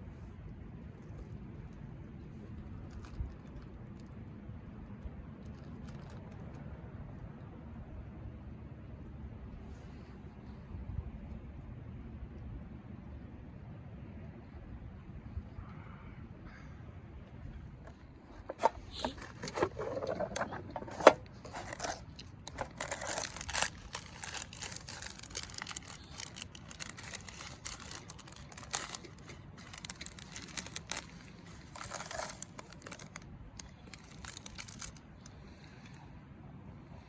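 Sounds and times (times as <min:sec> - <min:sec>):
plastic packaging crinkling and tearing: 0:05.5 - 0:06.5, 0:17.9 - 0:35.3.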